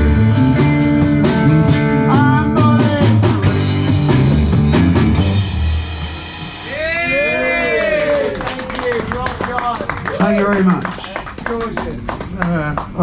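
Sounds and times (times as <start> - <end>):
electric guitar lead: 0.0 - 6.6
rock band playing: 0.0 - 10.0.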